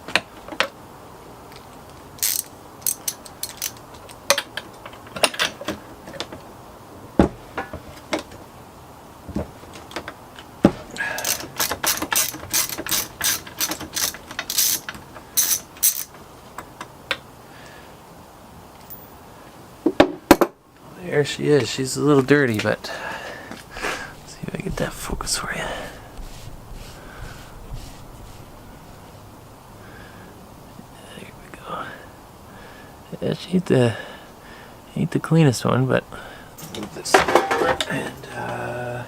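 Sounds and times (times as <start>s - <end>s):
ratchet wrench clicking: 2.2s - 4.4s, 11.2s - 16.1s.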